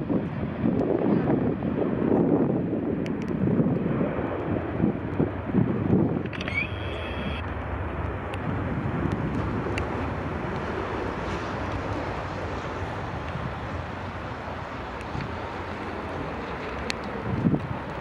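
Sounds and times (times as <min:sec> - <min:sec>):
wind buffeting microphone: 0:00.0 - 0:06.6, 0:07.4 - 0:18.0
jet engines rumbling: 0:00.1 - 0:18.0.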